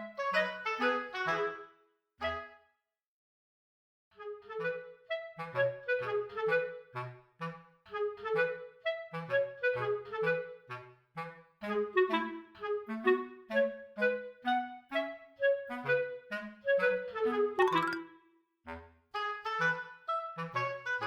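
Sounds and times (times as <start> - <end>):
bouncy staccato woodwind tune: 17.6 - 18.1.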